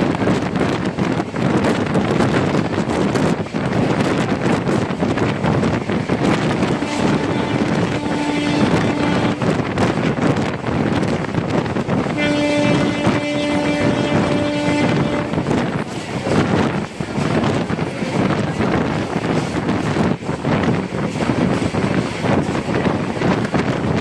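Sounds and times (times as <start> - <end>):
train wheels on rails: 0.0 - 24.0
wind on microphone: 0.0 - 24.0
long steady tones: 6.3 - 11.1, 12.0 - 17.2.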